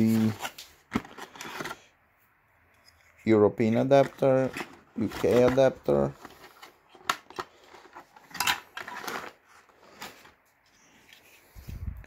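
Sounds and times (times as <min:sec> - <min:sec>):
packaging rustle: 0:00.0 - 0:01.9, 0:03.8 - 0:10.4.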